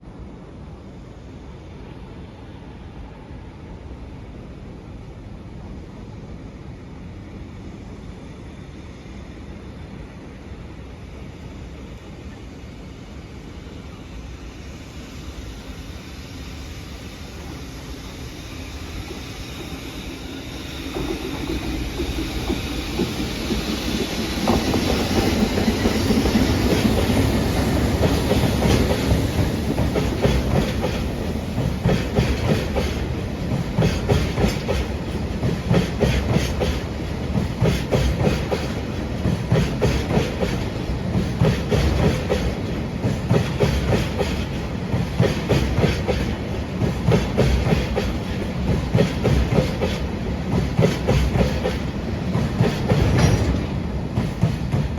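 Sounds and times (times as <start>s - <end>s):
freight train passing: 0.0s - 54.9s
wheels clattering over rail joints: 52.4s - 54.9s.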